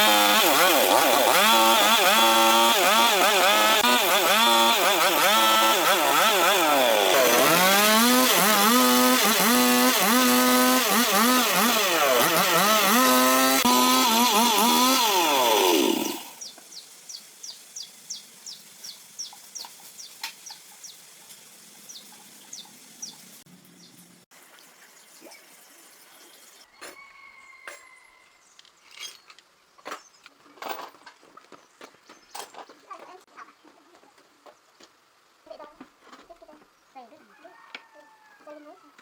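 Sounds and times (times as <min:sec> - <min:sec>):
chainsaw engine revving: 0:00.0 - 0:16.4.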